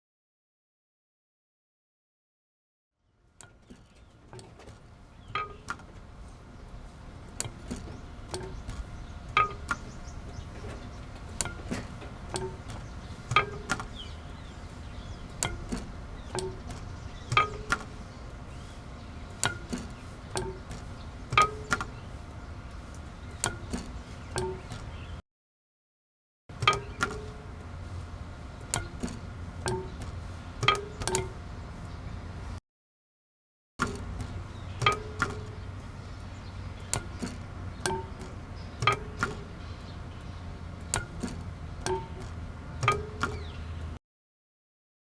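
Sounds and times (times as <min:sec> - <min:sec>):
sharp struck knocks with ringing: 0:07.4 - 0:10.8, 0:11.4 - 0:18.0, 0:19.4 - 0:22.0, 0:23.4 - 0:25.0, 0:26.6 - 0:27.6, 0:28.7 - 0:31.4, 0:33.8 - 0:35.7, 0:36.8 - 0:39.6, 0:40.9 - 0:43.8.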